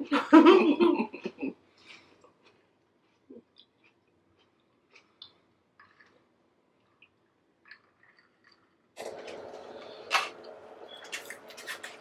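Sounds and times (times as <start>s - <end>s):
person chewing: 1.8s - 10.2s.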